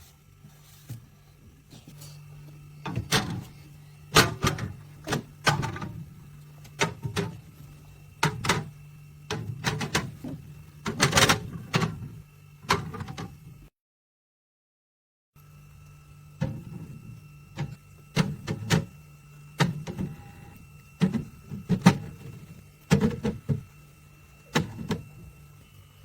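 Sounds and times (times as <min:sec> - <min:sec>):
steady low hum: 0:00.0 - 0:13.7
knocks and clunks of handling: 0:02.8 - 0:03.6, 0:21.0 - 0:23.7, 0:24.5 - 0:25.2.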